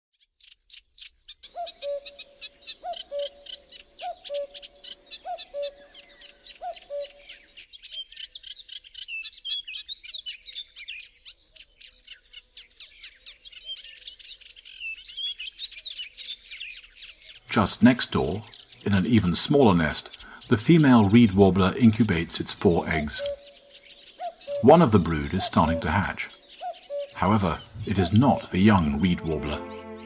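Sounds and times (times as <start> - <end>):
songbirds chattering: 0.2 - 30.0
cuckoo calling: 1.5 - 8.1, 17.4 - 30.0.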